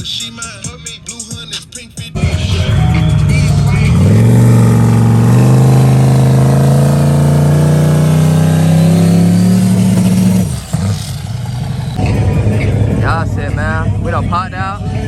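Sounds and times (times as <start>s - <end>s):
vehicle engine revving: 1.0s - 15.0s.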